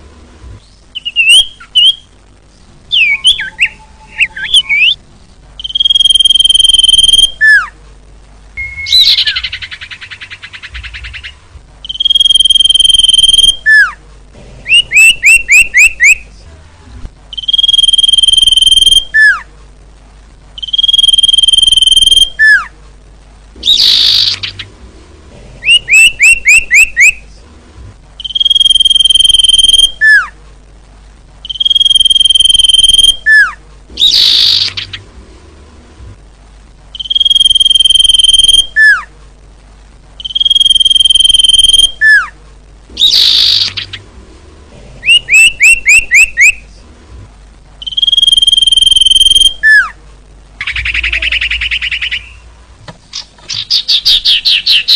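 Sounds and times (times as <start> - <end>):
bird whistling call: 0.9 - 2.0, 2.9 - 5.0, 5.6 - 7.7, 8.6 - 14.0, 14.7 - 16.2, 17.4 - 19.4, 20.6 - 22.7, 23.6 - 24.7, 25.6 - 27.2, 28.2 - 30.3, 31.5 - 35.0, 37.0 - 39.1, 40.2 - 42.3, 43.0 - 44.0, 45.0 - 46.6, 47.8 - 50.0
harsh rasping bird calls: 8.6 - 14.0, 23.6 - 24.8, 31.4 - 35.1, 43.0 - 44.1, 50.6 - 52.4, 53.1 - 54.9.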